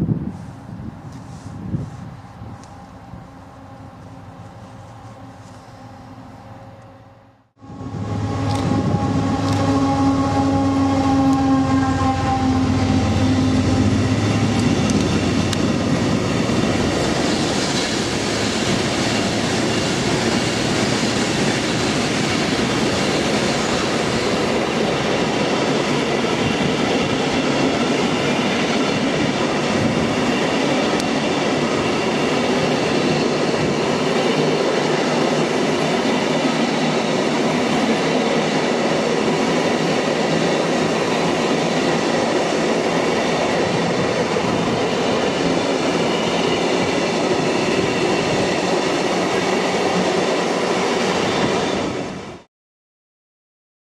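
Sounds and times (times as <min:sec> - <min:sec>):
train wheels rattling on rails: 0:07.8 - 0:52.5.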